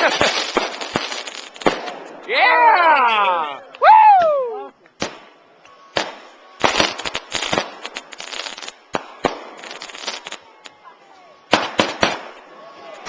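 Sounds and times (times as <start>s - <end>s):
firework bangs: 0.0s - 2.3s, 5.0s - 10.4s, 11.5s - 12.5s
firework crackling: 0.0s - 2.4s, 4.9s - 10.8s, 11.5s - 13.0s.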